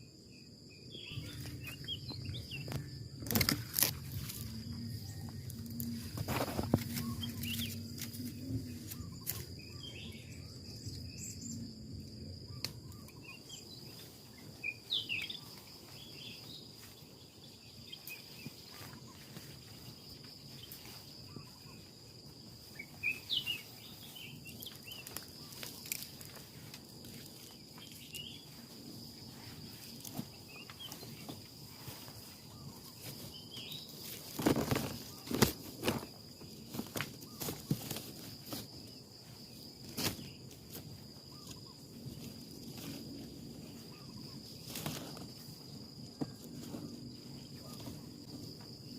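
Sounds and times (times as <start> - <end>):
bird chirps: 0.0 - 3.5, 4.5 - 22.0, 22.6 - 26.2
insect drone: 0.0 - 48.9.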